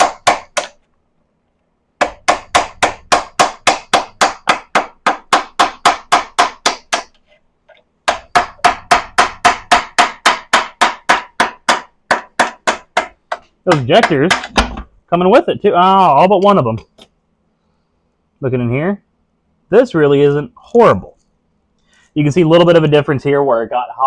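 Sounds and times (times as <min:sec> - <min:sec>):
hammer tapping on metal: 0:00.0 - 0:00.8, 0:02.0 - 0:07.2, 0:08.1 - 0:14.7.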